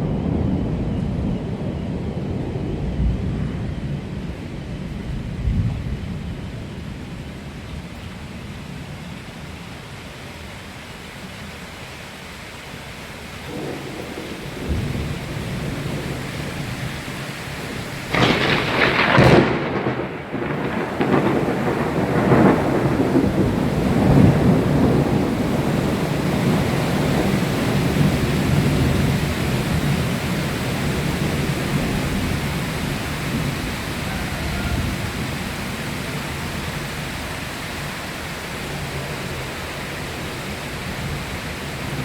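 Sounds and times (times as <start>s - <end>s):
thunder rumbling: 0.0s - 9.8s, 13.0s - 42.0s
steady rain: 0.0s - 42.0s
sharp thunder crack: 13.5s - 34.0s.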